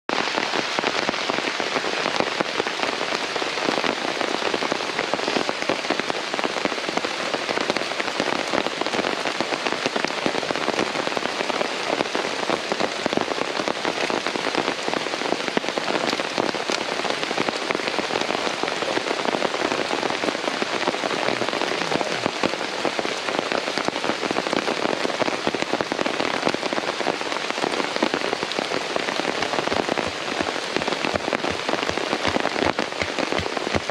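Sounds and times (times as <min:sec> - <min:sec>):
rain falling: 0:00.1 - 0:33.9.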